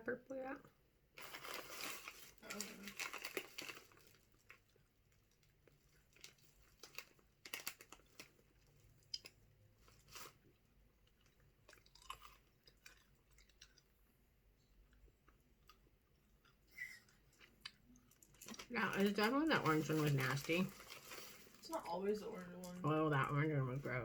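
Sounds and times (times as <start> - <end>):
chewing candy: 1.3 - 23.4
mouth clicks and crunches: 5.2 - 10.4, 11.0 - 14.0, 14.8 - 19.1.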